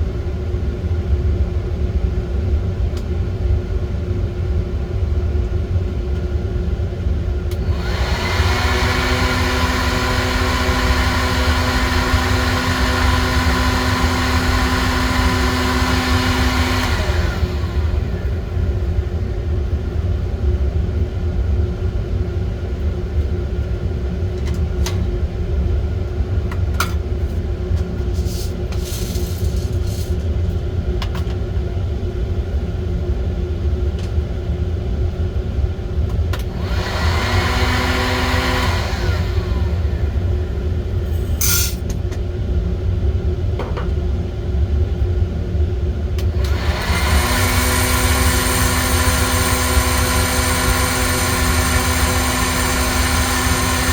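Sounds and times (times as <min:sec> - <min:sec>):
coffee roaster low rumble: 0:00.0 - 0:53.9
hissing blast with motor hum: 0:46.3 - 0:53.9.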